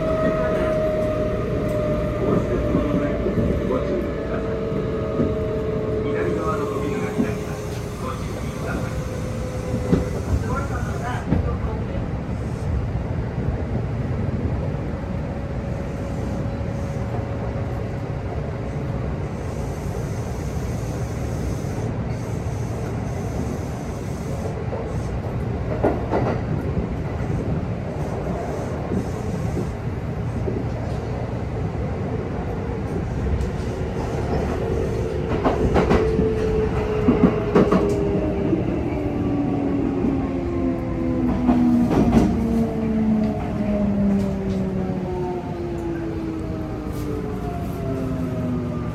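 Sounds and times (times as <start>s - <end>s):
rail joint clicks: 0.0s - 11.6s, 21.6s - 31.3s, 32.3s - 48.0s
train wheels rumbling on rail: 0.0s - 48.9s.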